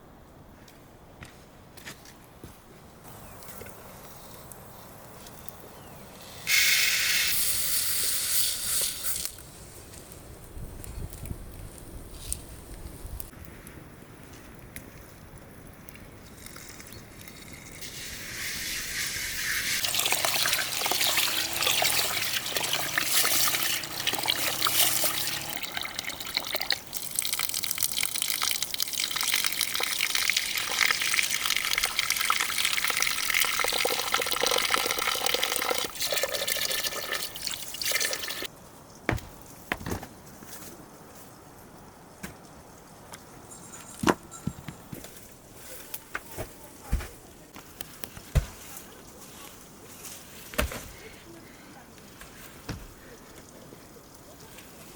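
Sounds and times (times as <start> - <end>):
water running and splashing: 16.5 - 38.5
sharp knocks: 39.1 - 40.1.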